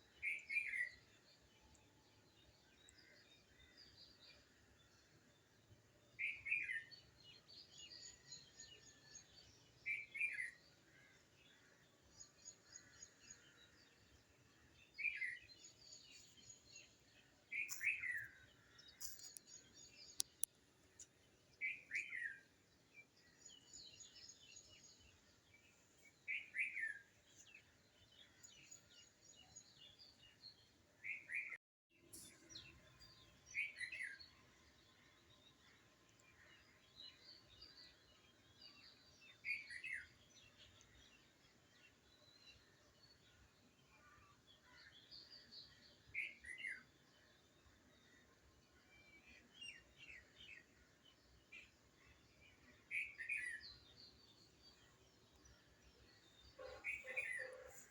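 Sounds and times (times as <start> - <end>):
faint high bird twittering: 56.1 - 57.9.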